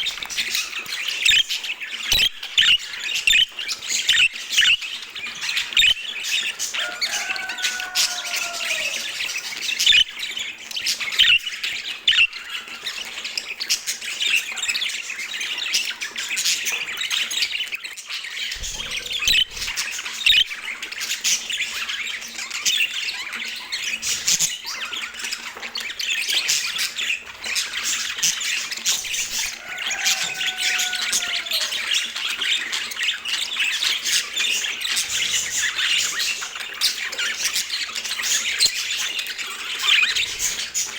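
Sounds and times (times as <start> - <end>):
budgerigars chattering: 0.0 - 17.6, 18.3 - 40.9
bird squawks and chirps: 5.6 - 10.4, 18.5 - 21.8, 26.4 - 34.1
longer falling bird call: 6.8 - 9.3, 29.6 - 31.9.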